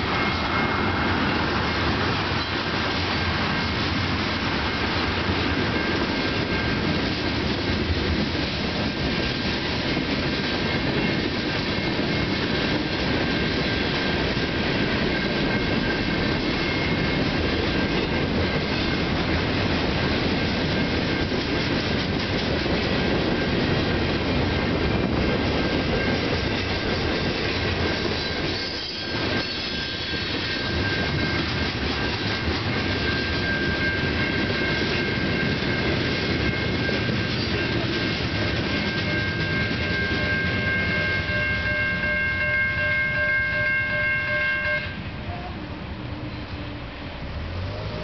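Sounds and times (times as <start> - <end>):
wheels clacking on rail joints: 0.0 - 42.0
high-pitched wheel squeal: 28.0 - 38.1
freight cars rumbling: 45.0 - 48.0.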